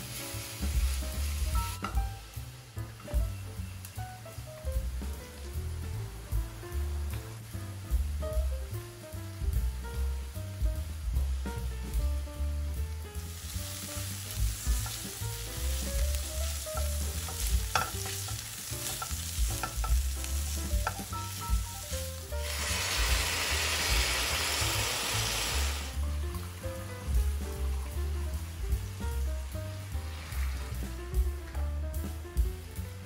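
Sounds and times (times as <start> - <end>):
vegetables sizzling in a pan: 0.0 - 33.0
liquid poured into hot pan: 22.4 - 26.5, 29.8 - 30.9.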